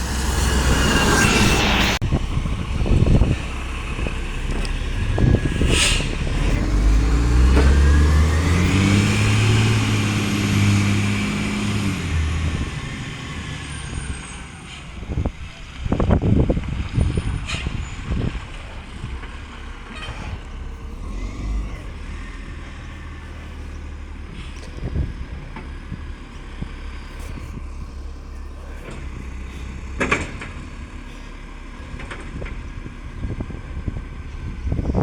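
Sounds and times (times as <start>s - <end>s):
garbage truck diesel engine: 0.0s - 35.0s
sharp clunks and knocks: 28.8s - 31.0s.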